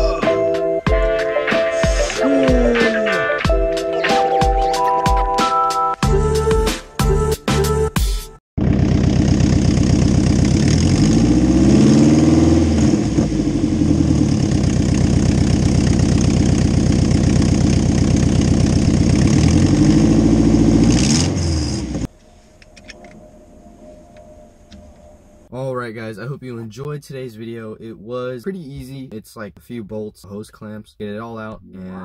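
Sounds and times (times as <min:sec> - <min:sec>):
car engine idling and revving: 0:08.6 - 0:22.1.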